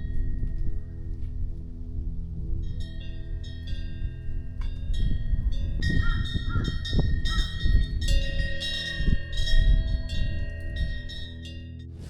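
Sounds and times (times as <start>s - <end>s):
wind rumble on microphone: 0.0s - 12.0s
small metal bells tinkling: 4.8s - 11.7s.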